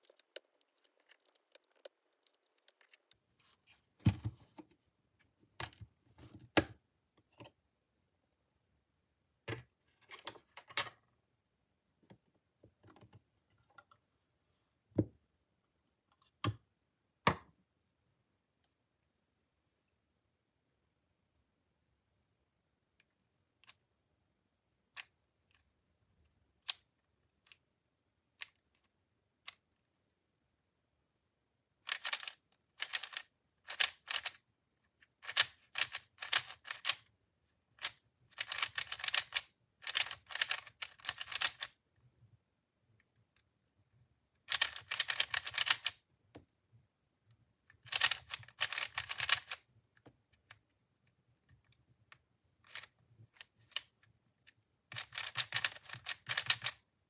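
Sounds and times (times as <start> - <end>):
puzzle cube clicking: 0.0 - 3.3, 31.9 - 34.4, 35.2 - 37.0, 37.8 - 41.8, 44.5 - 46.0, 47.8 - 49.6, 54.9 - 56.8
rapid clacking of cube turns: 0.0 - 3.4, 31.8 - 34.4, 35.0 - 37.1, 37.8 - 41.8, 44.4 - 46.0, 47.7 - 49.6, 52.6 - 54.0, 54.9 - 56.8.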